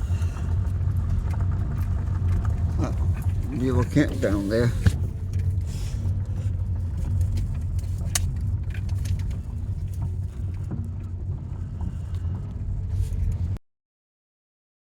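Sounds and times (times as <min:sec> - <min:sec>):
vehicle engine humming: 0:00.0 - 0:13.6
small clicks and knocks: 0:06.8 - 0:13.5.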